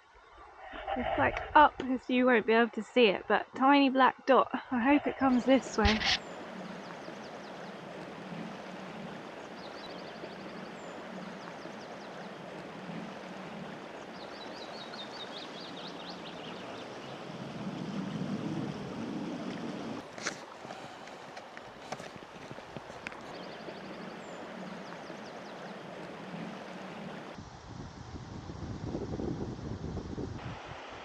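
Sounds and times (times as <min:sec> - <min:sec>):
river water rushing: 0:04.9 - 0:27.4
songbird singing: 0:05.0 - 0:17.3, 0:22.8 - 0:27.3.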